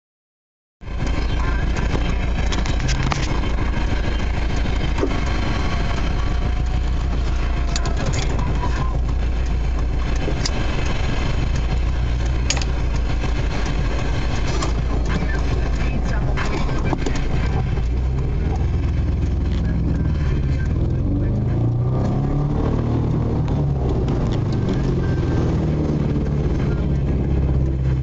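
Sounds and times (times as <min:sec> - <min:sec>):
car engine idling: 0:00.8 - 0:28.0.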